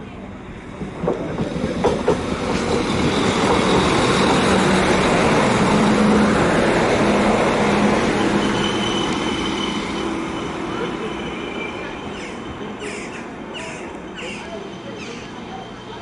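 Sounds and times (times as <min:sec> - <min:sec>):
train engine hum: 0:00.0 - 0:16.0
wheels clicking over rail joints: 0:00.8 - 0:04.5.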